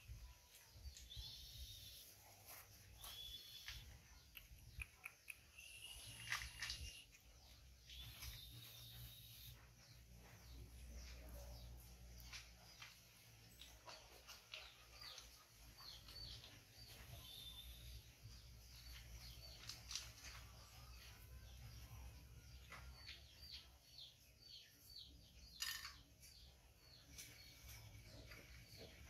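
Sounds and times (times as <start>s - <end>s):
high bird chirps: 0.8s - 7.2s, 7.8s - 10.0s.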